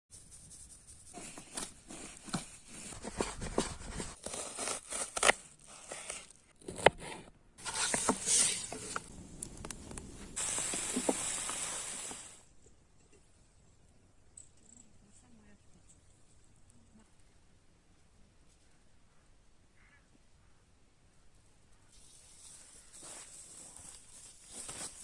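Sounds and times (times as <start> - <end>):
steady hiss: 7.7 - 12.5.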